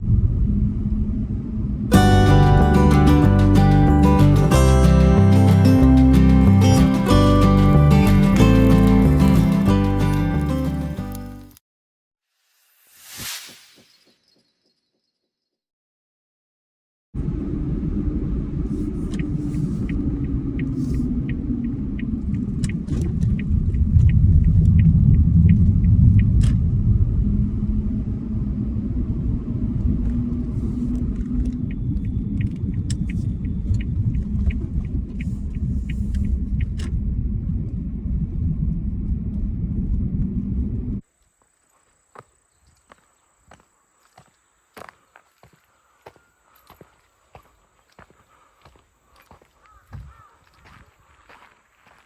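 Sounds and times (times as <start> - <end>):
road rumble inside a car: 17.2 - 41.0
light regular ticking: 19.1 - 26.4, 30.9 - 36.9.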